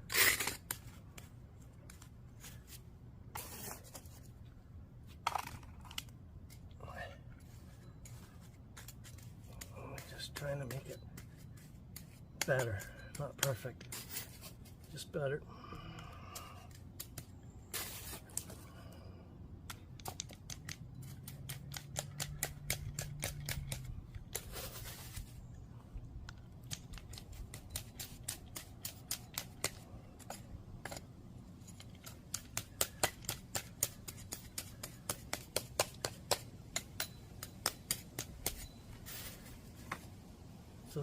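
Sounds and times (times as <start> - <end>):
metal tool scraping asphalt: 0.0 - 1.3, 1.9 - 4.3, 7.4 - 15.4, 17.1 - 18.6, 20.2 - 25.5, 26.8 - 40.0.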